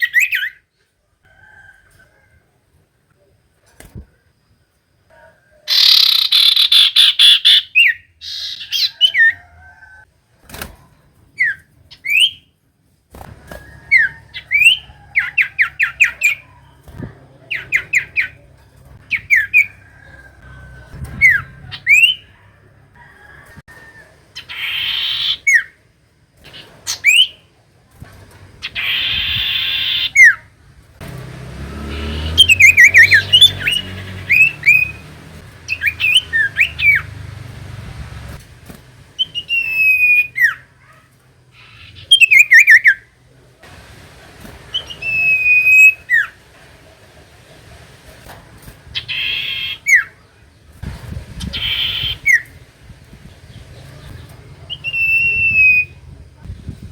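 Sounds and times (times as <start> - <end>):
bird calls and trills: 0.0 - 0.7, 5.5 - 9.4, 13.4 - 22.5, 24.3 - 25.8, 28.6 - 30.5, 31.8 - 37.6, 39.1 - 43.2, 44.6 - 46.4, 48.9 - 56.5.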